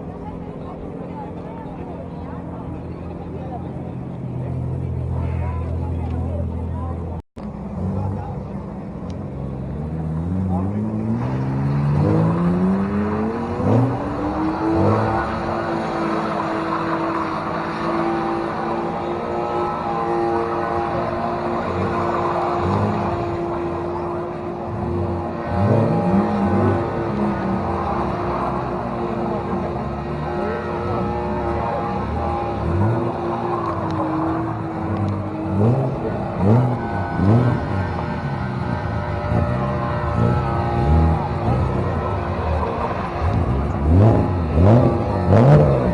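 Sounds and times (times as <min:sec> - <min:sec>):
car engine accelerating through gears: 0:00.2 - 0:45.9.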